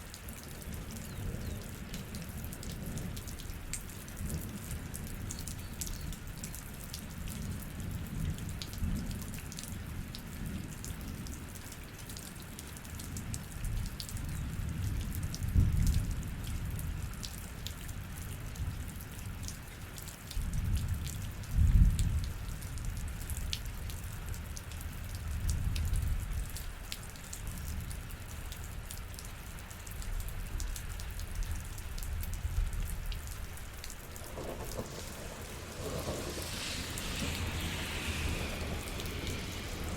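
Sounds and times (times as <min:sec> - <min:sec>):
raindrops ticking on a surface: 0:00.0 - 0:39.9
low rumble: 0:34.1 - 0:39.9.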